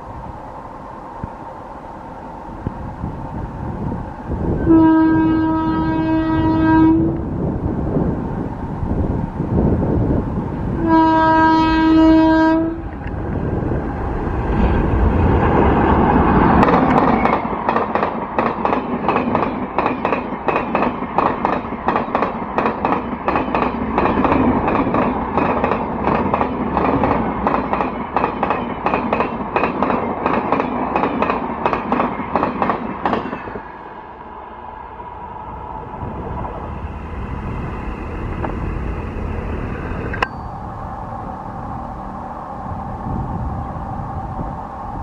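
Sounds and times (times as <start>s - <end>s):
train rushing past: 0.0s - 45.0s
train horn blast: 4.6s - 7.2s, 10.8s - 12.9s
train wheels clattering: 16.3s - 33.6s.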